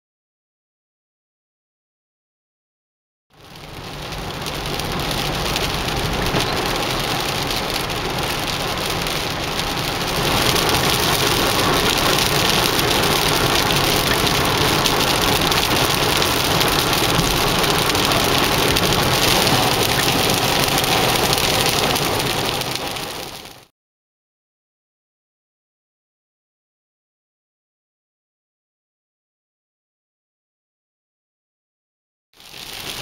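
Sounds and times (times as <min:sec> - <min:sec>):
heavy rain on car roof: 0:03.3 - 0:23.7, 0:32.4 - 0:33.0
tyres hissing on wet road: 0:03.4 - 0:23.7, 0:32.4 - 0:33.0.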